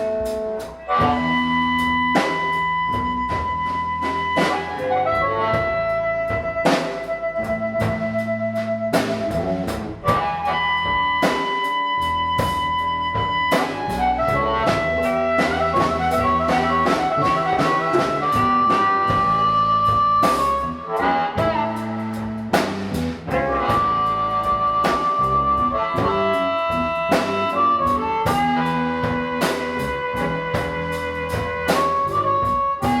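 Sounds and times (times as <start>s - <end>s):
lead instrument holding long notes: 0.0s - 33.0s
live blues band playing: 0.0s - 33.0s
drum hits: 21.4s - 26.4s.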